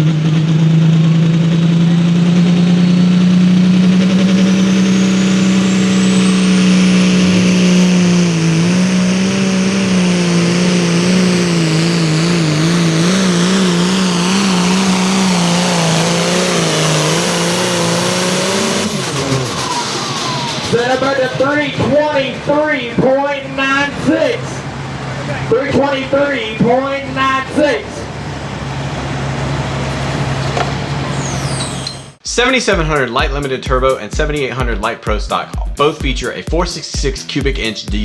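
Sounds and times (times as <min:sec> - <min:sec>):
tractor diesel engine at full throttle: 0:00.0 - 0:32.4
turbo whistle: 0:03.9 - 0:21.7.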